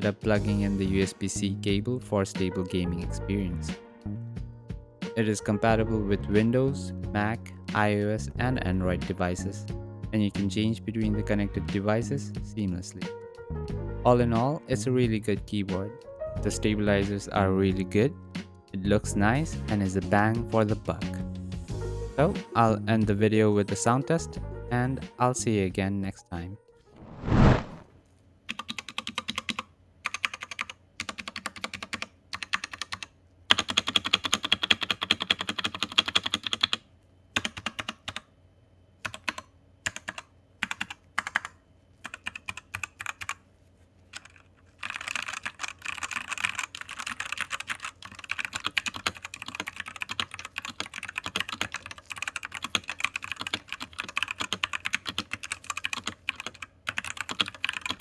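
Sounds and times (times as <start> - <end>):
mechanical keyboard typing: 28.5 - 36.8, 37.4 - 38.3, 39.0 - 43.4, 44.1 - 58.0.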